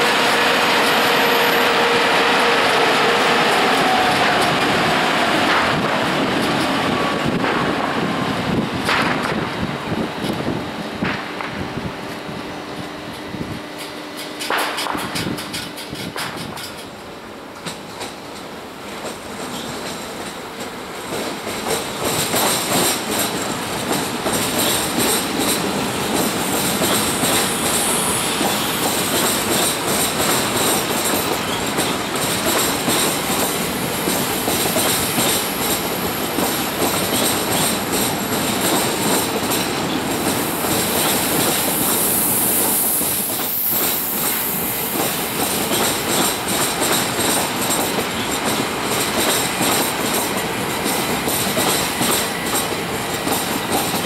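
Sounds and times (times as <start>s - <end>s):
wheels screeching on rail: 0.0s - 8.7s, 22.4s - 54.0s
train wheels clattering on rails: 0.0s - 12.3s, 13.0s - 54.0s.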